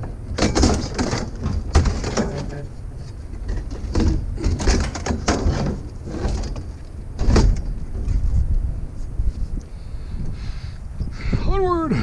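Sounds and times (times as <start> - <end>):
scrap clattering and rattling: 0.0 - 8.5.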